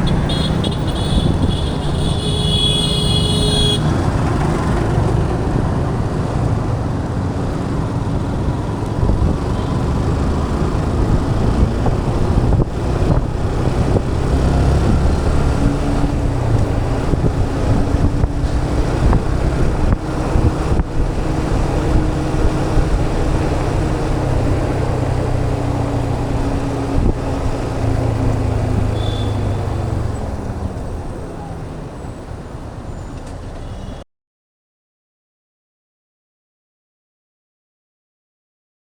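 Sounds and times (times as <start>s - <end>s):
wind buffeting microphone: 0.0s - 31.1s
motorcycle engine: 0.0s - 31.3s.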